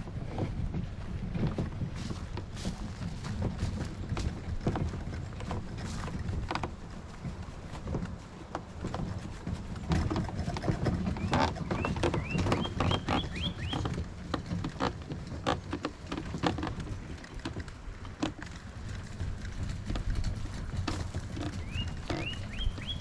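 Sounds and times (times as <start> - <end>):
water lapping against hull: 0.0 - 23.0
bird calling rising notes: 11.2 - 13.8, 21.6 - 23.0.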